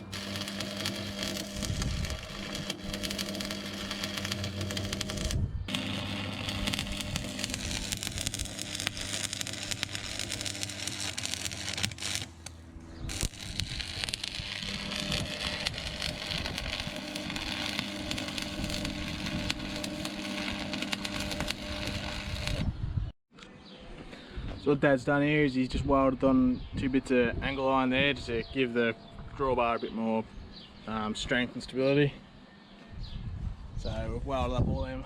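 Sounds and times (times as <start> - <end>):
arc welding crackle: 0.0 - 22.7
low hum: 0.0 - 23.1.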